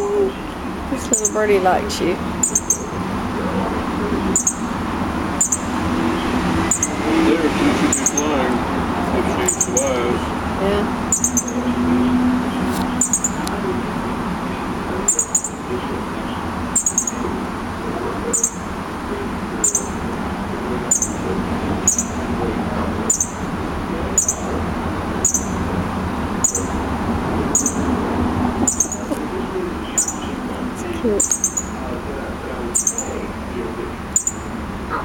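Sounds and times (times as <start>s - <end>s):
baby bird chirping: 0.0s - 1.5s, 2.2s - 3.2s, 3.8s - 13.6s, 14.7s - 17.4s, 18.2s - 18.7s, 19.6s - 20.1s, 20.8s - 22.4s, 23.1s - 23.6s, 24.2s - 25.7s, 26.3s - 28.0s, 28.6s - 31.9s, 32.7s - 33.3s, 34.1s - 34.5s
steady background noise: 0.0s - 35.0s.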